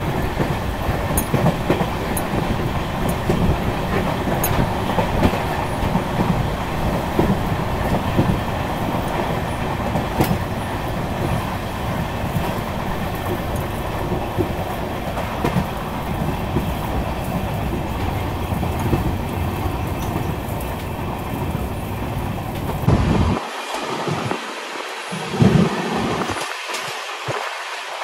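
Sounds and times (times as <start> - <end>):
train wheels rumbling on track: 0.0 - 23.4
sharp track clacks: 0.1 - 21.5.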